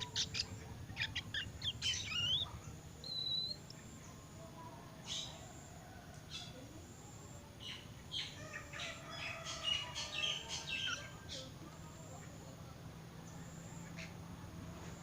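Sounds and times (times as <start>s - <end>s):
bird soft twittering: 0.0s - 4.2s.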